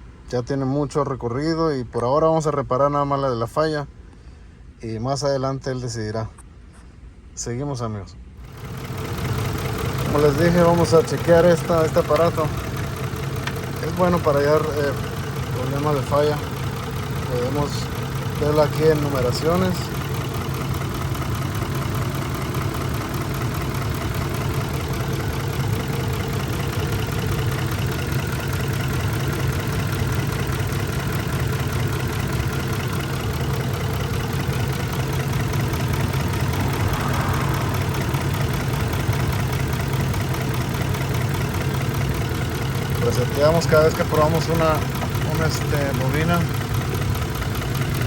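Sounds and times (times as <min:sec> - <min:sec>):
truck engine idling: 0:08.4 - 0:48.0.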